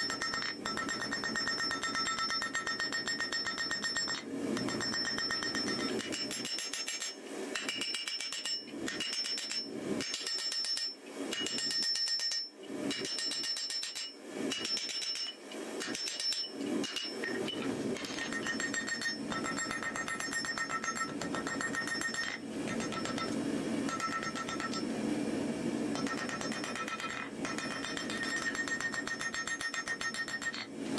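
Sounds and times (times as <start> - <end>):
anvil ringing: 0.0 - 7.0, 18.0 - 24.8, 26.0 - 30.6
hammer striking steel on anvil: 0.0 - 24.9, 25.9 - 30.7.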